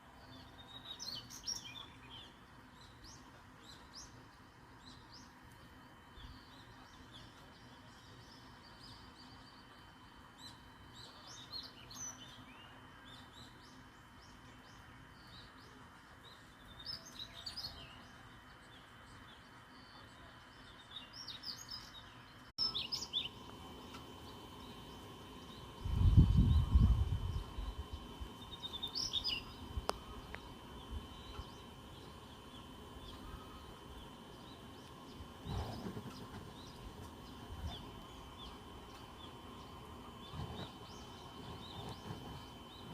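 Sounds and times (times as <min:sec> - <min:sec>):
small songbird chirping: 0:00.0 - 0:42.9
low microphone rumbles: 0:25.8 - 0:28.0.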